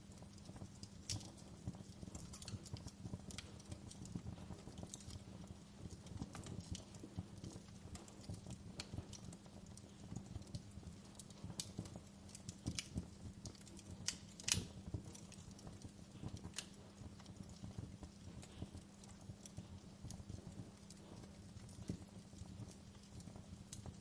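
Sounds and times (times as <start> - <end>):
wood fire crackling and popping: 0.0 - 24.0.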